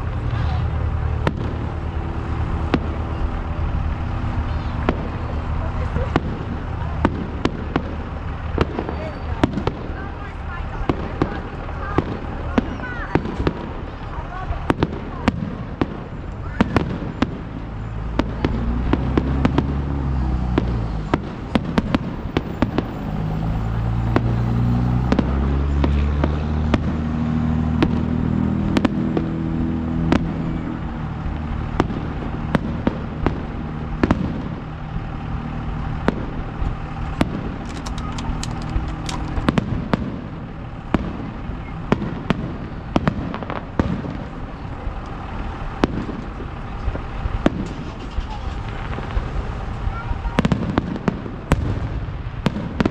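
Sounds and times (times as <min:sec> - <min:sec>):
continuous low rumble: 0:00.0 - 0:52.9
fireworks bangs and crackles: 0:00.0 - 0:52.9.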